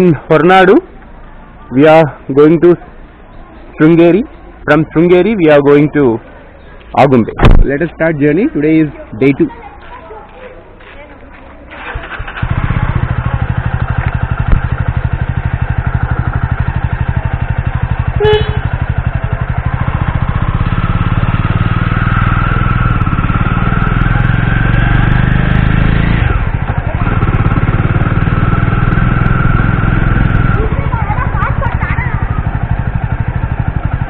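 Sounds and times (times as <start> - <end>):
motorcycle engine running: 11.4 - 34.0.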